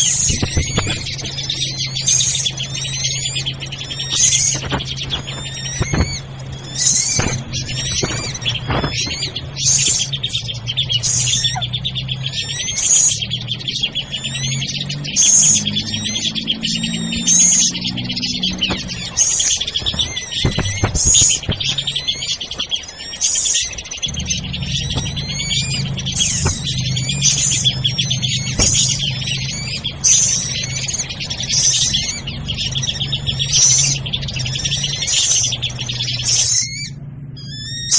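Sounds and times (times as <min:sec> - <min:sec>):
steady low hum: 0:00.0 - 0:37.7
birds calling agitatedly: 0:00.0 - 0:37.9.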